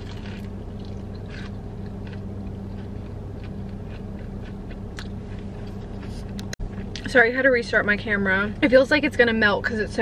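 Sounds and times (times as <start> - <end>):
chewing crunchy fried food: 0.0 - 7.1
low car cabin hum: 0.0 - 10.0.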